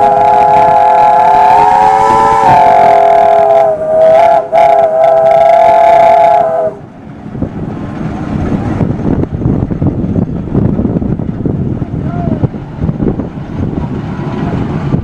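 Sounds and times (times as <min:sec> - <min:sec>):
steam whistle chord: 0:00.0 - 0:06.8
low rough rumbling: 0:00.0 - 0:15.0.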